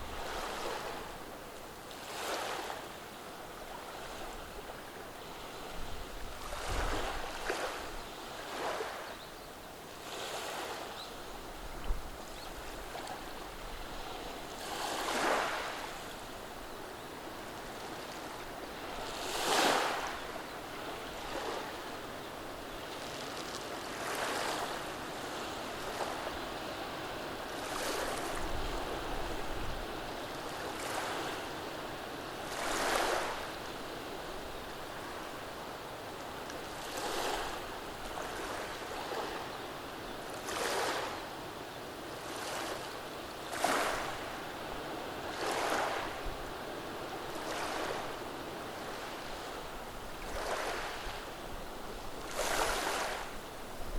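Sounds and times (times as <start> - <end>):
gentle waves washing over stones: 52.2 - 53.4.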